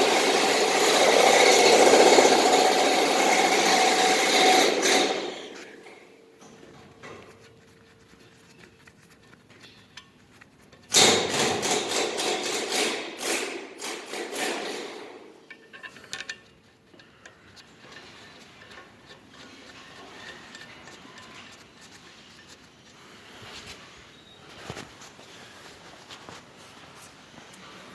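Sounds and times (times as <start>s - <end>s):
rapid metallic knocking and rattling: 0.0s - 5.4s, 10.9s - 16.4s
faint workshop noise: 0.0s - 27.9s.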